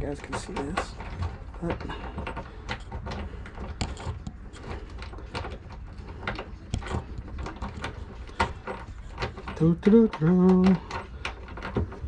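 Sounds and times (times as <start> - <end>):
clicks taps and scrapes of hands: 0.0 - 12.0
low steady hum: 0.0 - 12.0.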